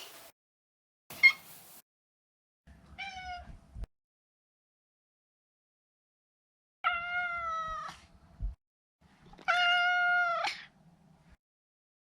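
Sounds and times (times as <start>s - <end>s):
cat meowing: 6.8s - 7.9s, 9.4s - 10.6s.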